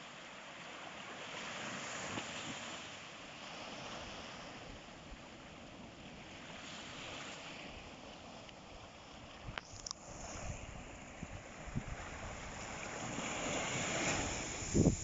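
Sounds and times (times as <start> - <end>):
sea surf washing in: 0.0 - 15.0
wind rumble on microphone: 3.4 - 15.0.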